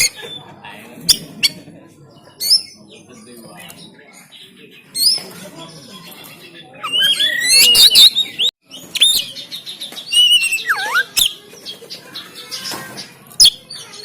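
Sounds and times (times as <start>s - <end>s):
bird singing varied whistles: 6.8s - 9.4s, 10.1s - 11.4s.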